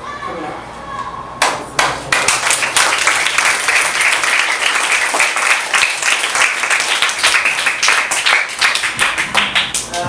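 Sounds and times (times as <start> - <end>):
students clapping: 1.4 - 10.0.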